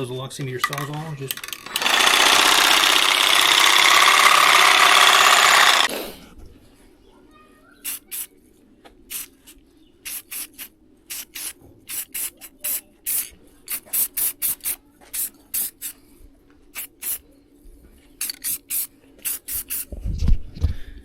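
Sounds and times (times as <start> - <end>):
spray can hissing: 7.8 - 8.3, 9.1 - 9.4, 10.0 - 16.0, 16.8 - 17.2, 18.2 - 19.9.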